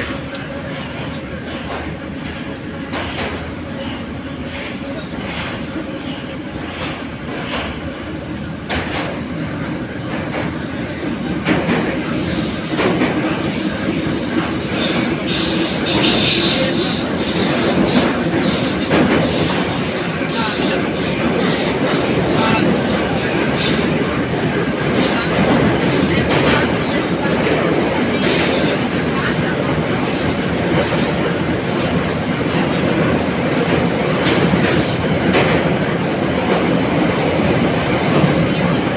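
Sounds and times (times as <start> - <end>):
wheels rumbling on rail: 0.0 - 38.9
high wheel squeal: 12.2 - 21.8.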